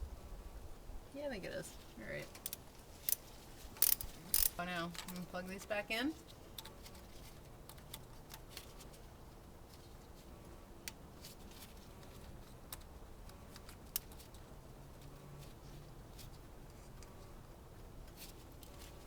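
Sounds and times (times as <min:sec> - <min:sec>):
low steady hum: 0:00.0 - 0:19.0
small clicks of engine parts: 0:02.2 - 0:05.3, 0:06.2 - 0:09.1, 0:10.8 - 0:19.0.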